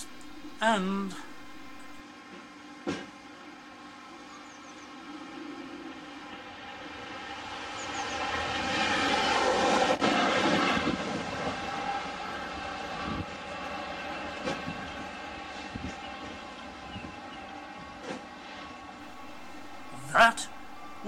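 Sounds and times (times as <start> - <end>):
freight train passing: 0.0 - 2.0, 19.1 - 21.0.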